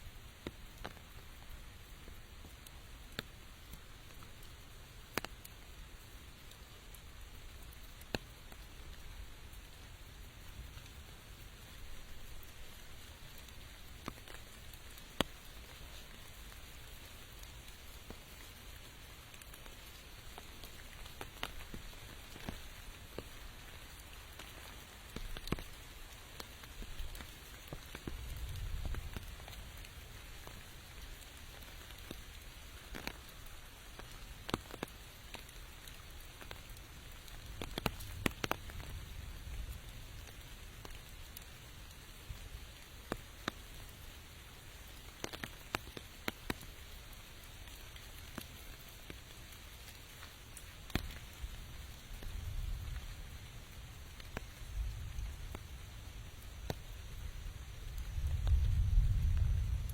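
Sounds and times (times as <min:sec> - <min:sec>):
rain hissing: 0:00.0 - 0:59.9
single raindrops striking: 0:10.5 - 0:41.6, 0:45.0 - 0:55.7, 0:56.4 - 0:59.9.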